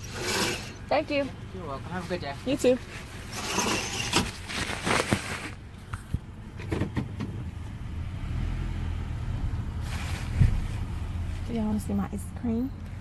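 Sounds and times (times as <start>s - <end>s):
rustling: 2.0s - 6.2s, 9.8s - 11.8s
car engine hum: 5.4s - 13.0s.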